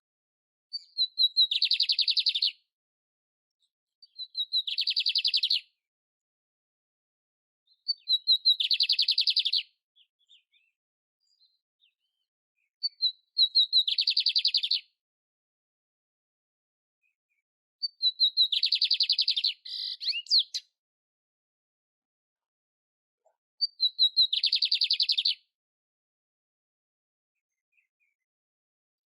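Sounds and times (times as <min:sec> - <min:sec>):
canary singing with buzzy trills: 0:12.8 - 0:14.8, 0:17.8 - 0:20.6.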